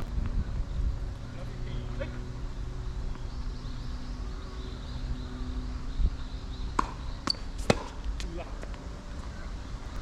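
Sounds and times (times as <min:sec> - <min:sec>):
wind buffeting microphone: 0:00.0 - 0:01.9.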